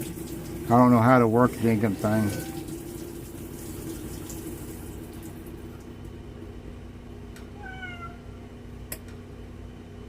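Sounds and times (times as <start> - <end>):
washing machine humming: 0.0 - 10.0
cat meowing: 7.6 - 8.4.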